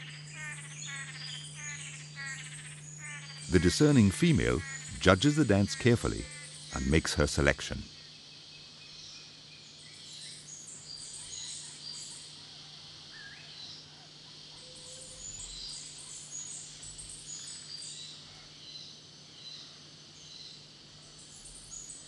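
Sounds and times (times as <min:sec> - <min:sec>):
birds chirping: 0:00.0 - 0:08.0
faint low hum: 0:00.0 - 0:08.1.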